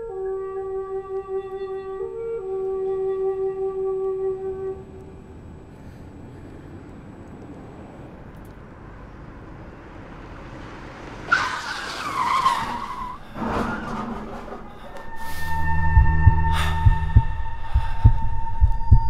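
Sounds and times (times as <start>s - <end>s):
tyres screeching: 11.2s - 17.8s
low steady rumble: 12.8s - 19.0s.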